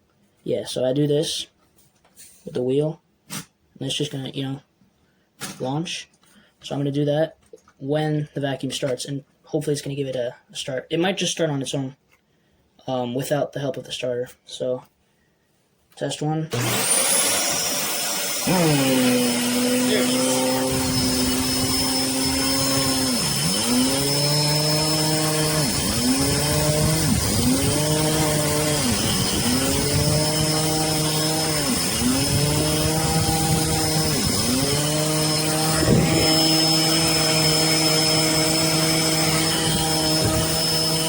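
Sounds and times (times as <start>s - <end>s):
vacuum cleaner motor whine: 16.6s - 23.4s, 35.2s - 37.2s.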